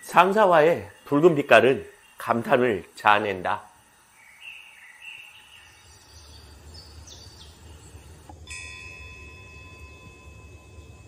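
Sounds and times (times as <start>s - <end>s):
steady high tones: 0.0s - 11.0s
bird chirps: 4.0s - 8.3s.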